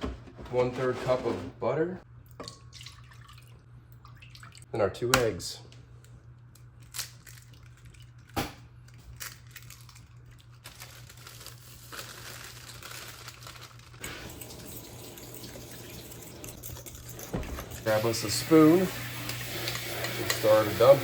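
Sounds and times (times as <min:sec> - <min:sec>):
crinkling rustle: 0:08.9 - 0:14.0.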